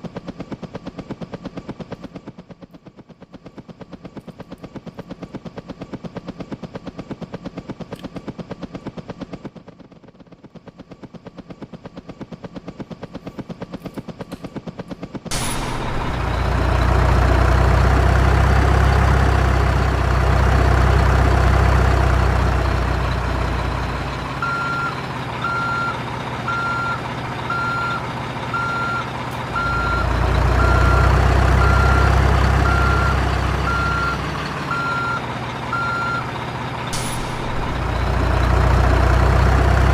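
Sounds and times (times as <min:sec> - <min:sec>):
truck engine rumble: 0:00.0 - 0:39.9
reversing alarm beeping: 0:23.7 - 0:38.5.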